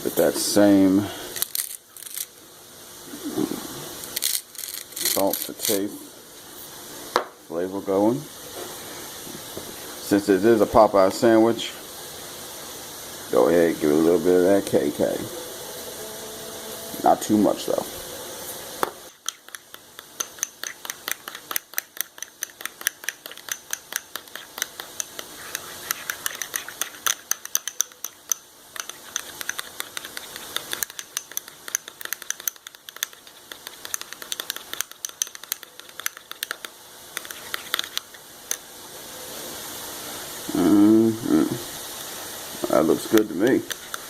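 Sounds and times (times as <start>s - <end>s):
utensil stirring sauce in bowl: 3.9s - 5.9s, 18.5s - 38.8s, 41.9s - 44.0s.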